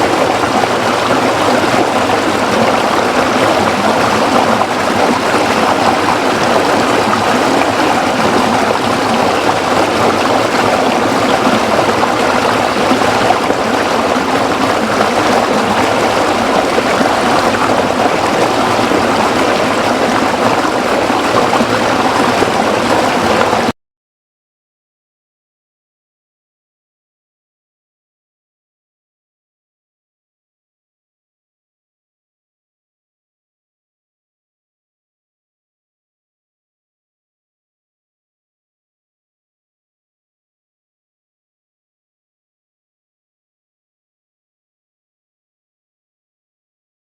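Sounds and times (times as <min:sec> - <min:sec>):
stream flowing over rocks: 0:00.0 - 0:23.7.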